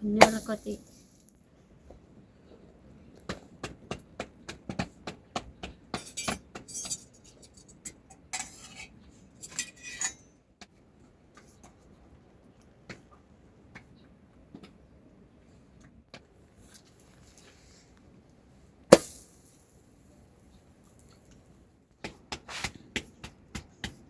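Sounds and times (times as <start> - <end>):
metal dishes clinking: 5.9 - 10.2.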